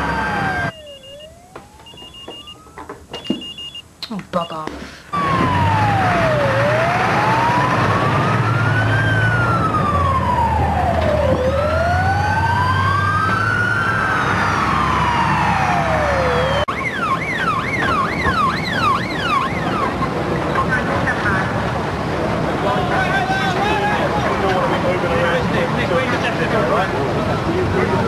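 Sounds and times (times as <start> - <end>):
fast yelping siren: 0.0 - 2.9, 5.2 - 20.0
sirens wailing: 0.0 - 3.8, 5.1 - 28.0.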